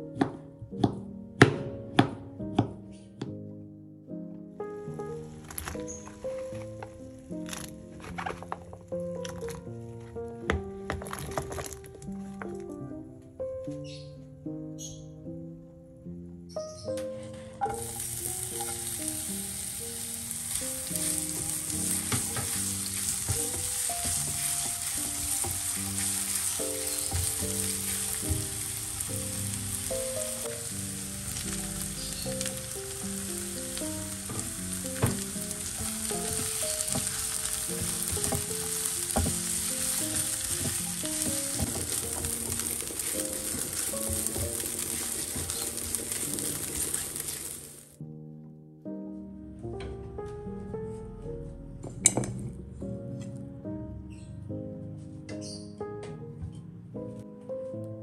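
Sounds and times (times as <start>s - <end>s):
food sizzling in a pan: 17.6s - 48.0s
spatula scraping and tapping pan: 20.5s - 28.9s, 33.8s - 47.6s.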